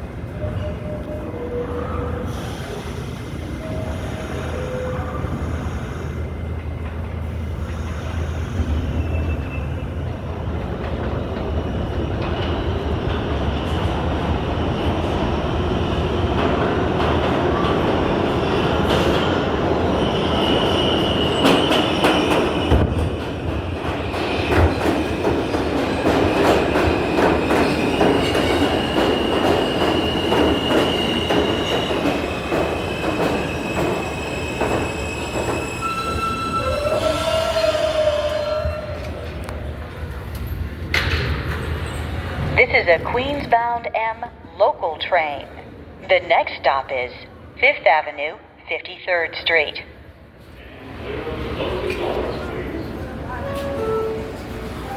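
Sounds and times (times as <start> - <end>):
subway train rumbling: 0.0 - 54.9
high wheel squeal: 32.2 - 38.8.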